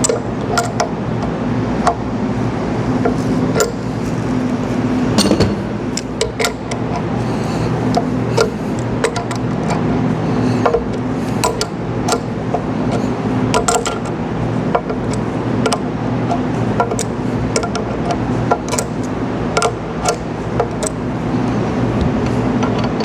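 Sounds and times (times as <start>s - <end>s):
low hum: 0.0s - 15.2s
tools knocking on metal fittings: 5.2s - 7.1s, 10.6s - 15.9s.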